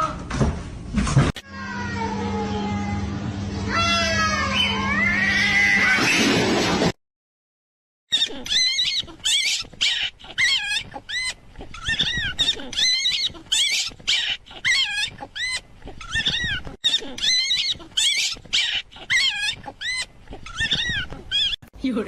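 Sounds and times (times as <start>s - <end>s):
animal squealing: 8.1s - 21.6s.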